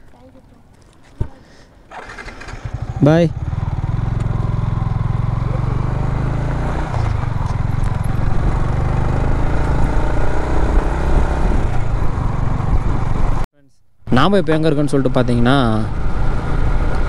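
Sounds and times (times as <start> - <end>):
motorcycle engine running: 1.9 - 13.4, 15.3 - 17.0.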